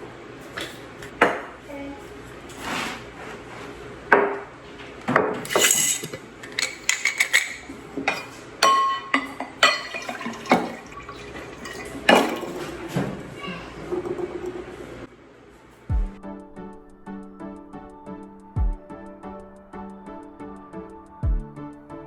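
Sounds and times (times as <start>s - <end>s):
glass jars clinking: 5.3s - 13.0s.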